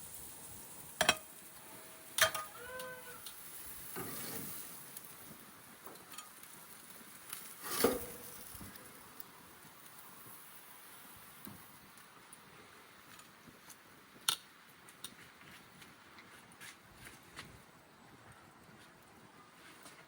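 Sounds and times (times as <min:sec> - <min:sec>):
meat sizzling on grill: 0:00.0 - 0:14.9.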